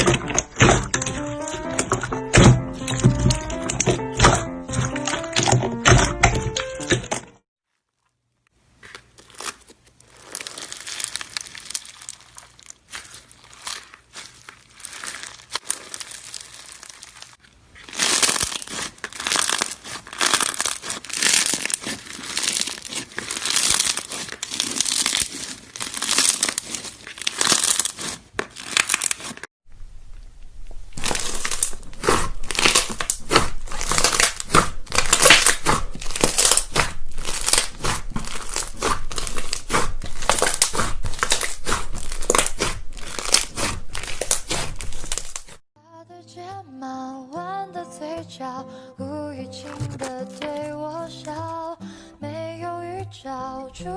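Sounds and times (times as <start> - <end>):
slime crackling and popping: 0.0 - 7.2, 8.6 - 45.6.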